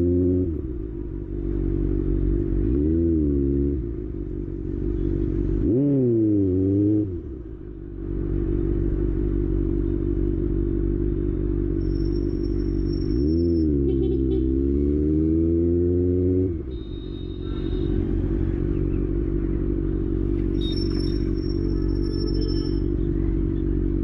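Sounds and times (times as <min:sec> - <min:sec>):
motorcycle engine idling: 0:00.6 - 0:02.8, 0:03.8 - 0:05.7, 0:07.2 - 0:14.5, 0:16.6 - 0:24.0
engine revving: 0:02.5 - 0:04.0, 0:05.5 - 0:07.4, 0:11.8 - 0:16.9.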